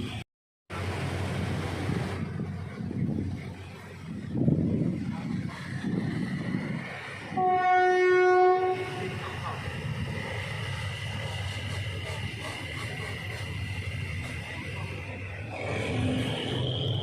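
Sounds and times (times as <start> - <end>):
train rumbling on track: 0.0 - 17.0
locomotive horn blast: 7.3 - 9.4.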